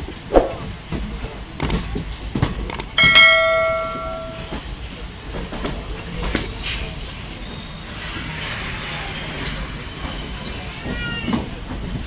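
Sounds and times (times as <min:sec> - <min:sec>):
train wheels knocking over rail joints: 0:00.8 - 0:06.6
sharp clicks: 0:01.6 - 0:01.8, 0:02.7 - 0:03.0
bell chime: 0:03.0 - 0:04.6.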